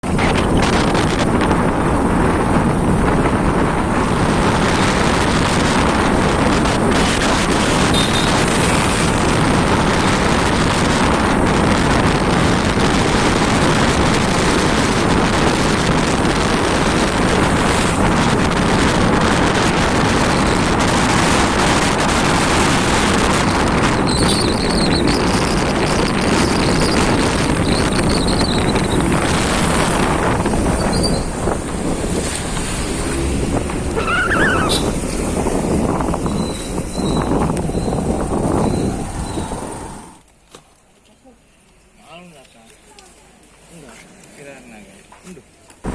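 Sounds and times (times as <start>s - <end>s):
wind buffeting microphone: 0.0s - 40.3s
road noise: 0.0s - 45.9s
motorcycle engine: 3.6s - 40.2s.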